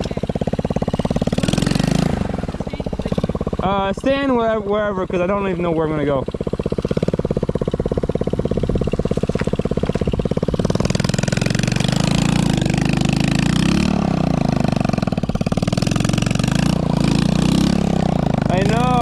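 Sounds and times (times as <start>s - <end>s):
small engine revving: 0.0s - 19.0s.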